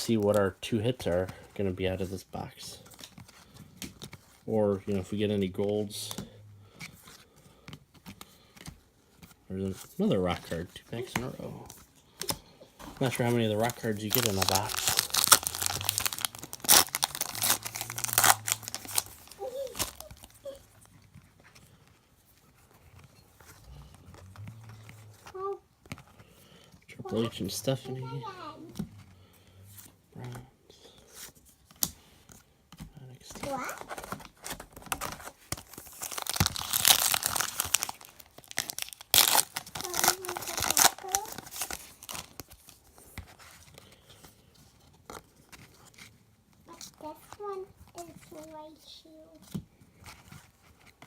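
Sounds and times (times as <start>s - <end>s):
foil wrapper tearing and crinkling: 13.0s - 20.6s, 34.8s - 42.8s.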